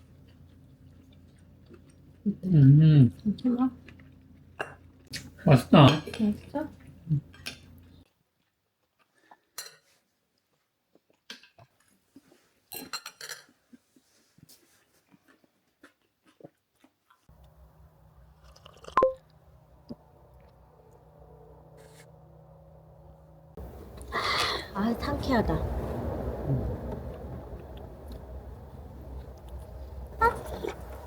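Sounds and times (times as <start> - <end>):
pet crunching food: 0.0 - 2.3, 3.2 - 9.3, 14.4 - 19.4
steady low hum: 19.3 - 31.0.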